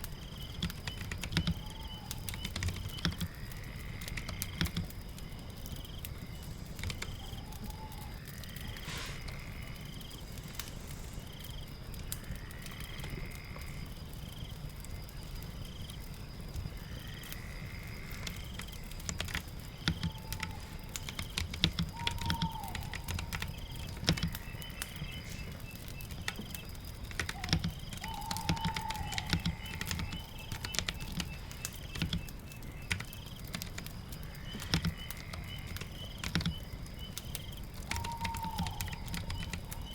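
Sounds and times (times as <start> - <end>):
fire crackling: 0.0 - 39.9
rain: 0.0 - 39.9
lower whistled bird call: 0.3 - 3.2, 7.0 - 9.4, 19.8 - 33.3, 34.8 - 39.9
falling bird whistles: 21.8 - 25.5
keyboard typing clicks: 27.1 - 32.3, 34.6 - 36.6.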